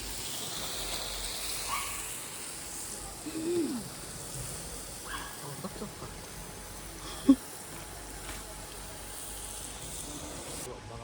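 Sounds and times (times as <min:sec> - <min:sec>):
background hiss: 0:00.0 - 0:10.7
person humming: 0:03.2 - 0:03.9.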